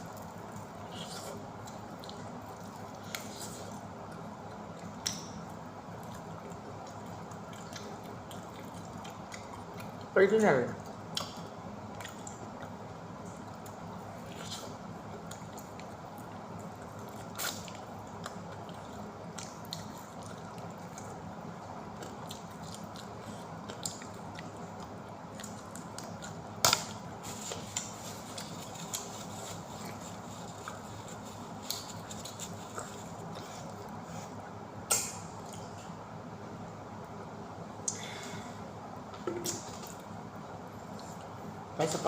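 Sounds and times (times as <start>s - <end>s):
chewing and mouth clicks: 0.0s - 5.4s, 6.0s - 10.1s, 10.8s - 21.2s, 21.9s - 34.2s
steady background hum: 0.0s - 42.0s.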